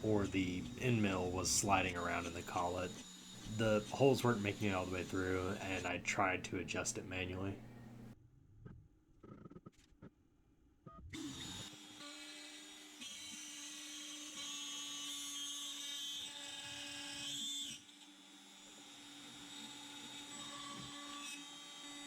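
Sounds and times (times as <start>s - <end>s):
cnc router spindle whining: 0.0s - 6.6s.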